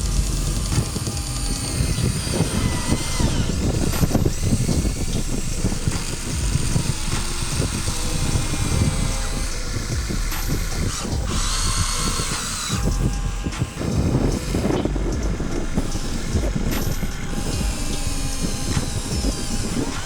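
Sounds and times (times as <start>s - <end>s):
small electric motors whining: 0.0s - 20.0s.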